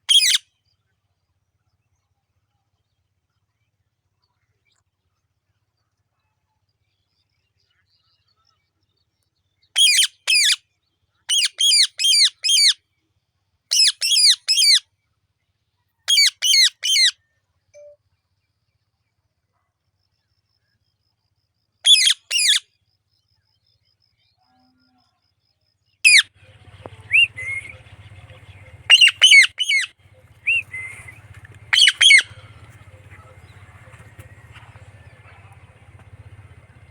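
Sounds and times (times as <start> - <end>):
parrot squawking: 26.1 - 36.9.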